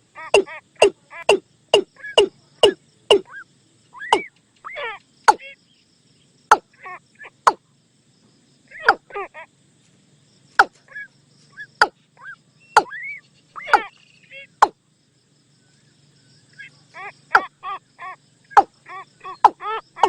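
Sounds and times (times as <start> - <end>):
bird clicking and croaking calls: 0.2 - 5.7, 6.5 - 7.7, 8.7 - 9.2, 10.5 - 14.8, 16.5 - 20.0.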